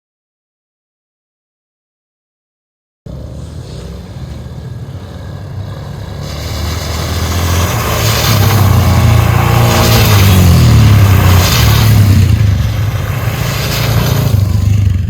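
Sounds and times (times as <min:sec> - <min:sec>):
vehicle engine running: 0:03.1 - 0:15.0.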